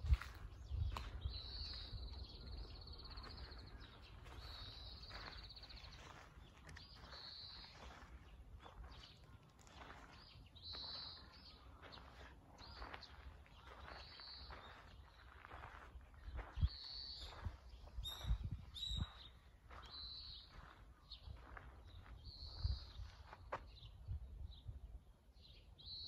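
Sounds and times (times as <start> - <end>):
soft footsteps: 0.0 - 11.0.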